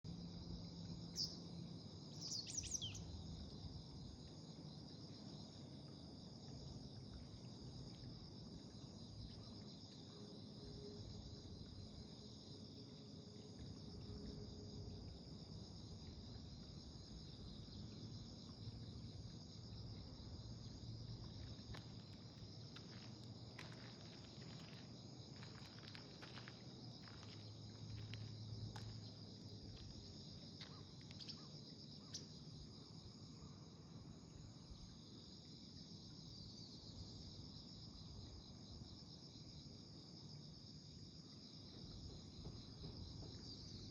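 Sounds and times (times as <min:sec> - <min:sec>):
bird chirps: 0:02.2 - 0:03.1
insect trilling: 0:02.2 - 0:03.1, 0:30.6 - 0:32.3.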